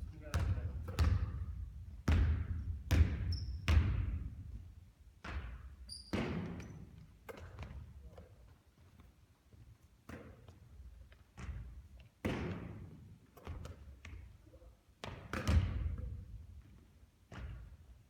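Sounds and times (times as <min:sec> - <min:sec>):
basketball thudding on court: 0:00.2 - 0:01.4, 0:02.0 - 0:04.2, 0:15.0 - 0:15.9.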